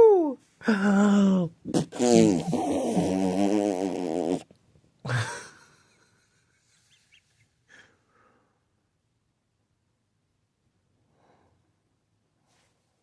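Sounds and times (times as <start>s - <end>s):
person blowing with low buzz: 1.6s - 4.4s.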